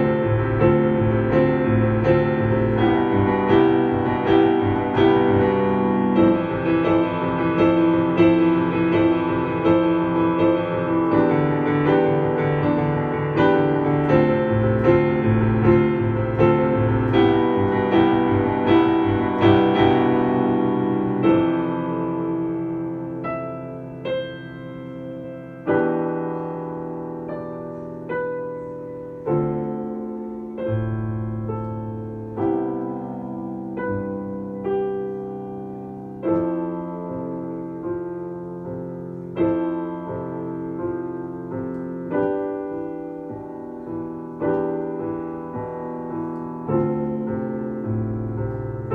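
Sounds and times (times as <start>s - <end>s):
solo piano piece: 0.0s - 48.9s.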